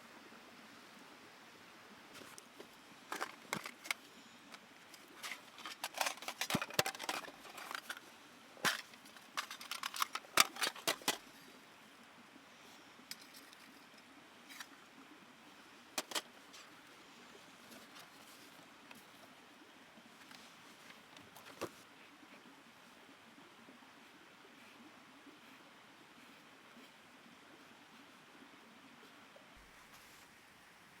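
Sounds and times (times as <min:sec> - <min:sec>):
hard objects clicking and clinking: 0:03.1 - 0:08.0, 0:08.6 - 0:11.2, 0:16.0 - 0:16.3.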